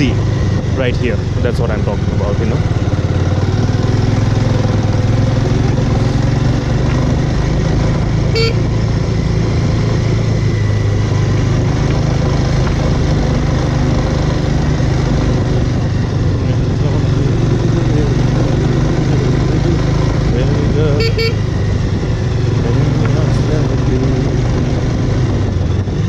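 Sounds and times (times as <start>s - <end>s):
motorcycle engine running: 0.0s - 26.0s
short horn toot: 8.3s - 8.7s, 20.9s - 21.4s.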